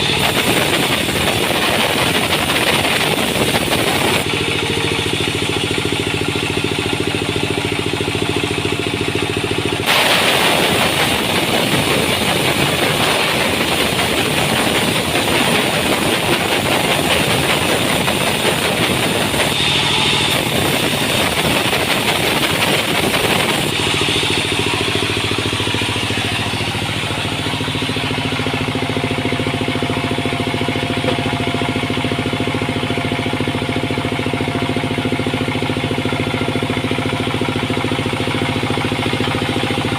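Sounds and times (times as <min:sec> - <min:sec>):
saw cutting wood: 0:00.0 - 0:05.8, 0:09.8 - 0:29.2
sawmill machinery humming: 0:00.0 - 0:39.9.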